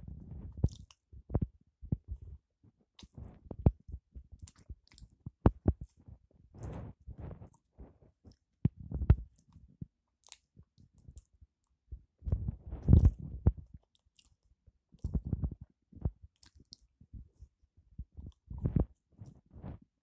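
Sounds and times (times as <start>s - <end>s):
wet mouth clicks: 0.6s - 1.0s, 3.0s - 3.3s, 4.4s - 5.9s, 10.2s - 11.3s, 12.8s - 14.4s
chewing and biting sandwich: 10.2s - 11.3s, 12.8s - 14.4s.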